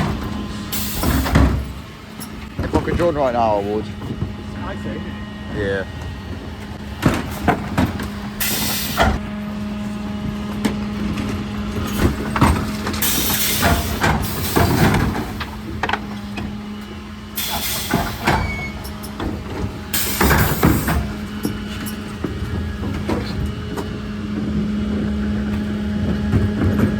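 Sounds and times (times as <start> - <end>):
truck engine hum: 0.0 - 26.9
air hiss bursts: 17.4 - 18.3
knocks and clatters: 17.5 - 26.9.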